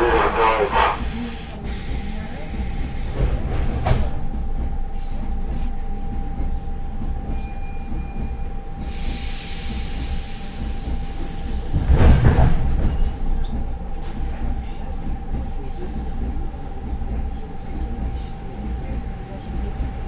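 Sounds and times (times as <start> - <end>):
hiss: 0.0 - 3.4, 8.8 - 11.7
train interior rumble: 0.0 - 20.0
train wheel knock: 10.6 - 20.0
heavy wheel thump: 11.7 - 13.3.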